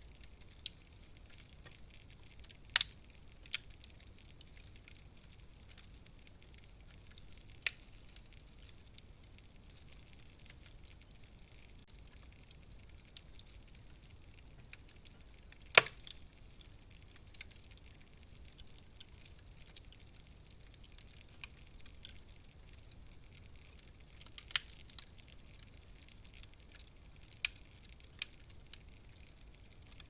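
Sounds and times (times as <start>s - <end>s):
low steady hiss: 0.0s - 30.0s
wood fire crackling: 0.0s - 30.0s.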